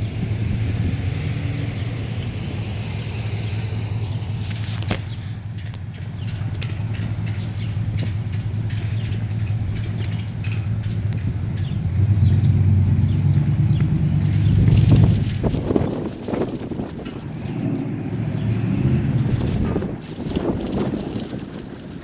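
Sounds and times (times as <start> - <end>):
wind on microphone: 0.0 - 3.9, 11.9 - 22.0.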